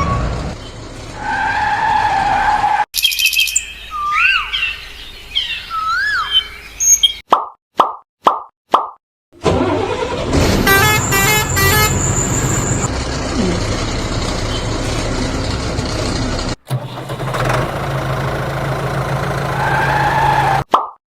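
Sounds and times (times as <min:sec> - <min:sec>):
truck engine running: 0:09.4 - 0:20.6
second engine running: 0:09.5 - 0:20.6
short horn honks: 0:10.6 - 0:12.9.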